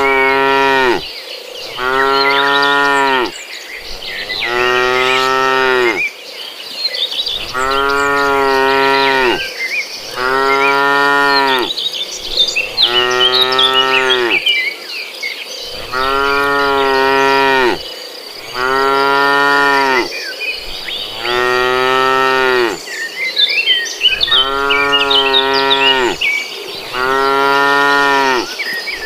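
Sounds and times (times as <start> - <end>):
cattle mooing: 0.0 - 1.0, 1.7 - 3.3, 4.0 - 6.0, 7.4 - 9.5, 10.1 - 11.7, 12.6 - 14.4, 15.8 - 17.8, 18.4 - 20.1, 21.0 - 22.8, 24.2 - 26.2, 26.8 - 28.5.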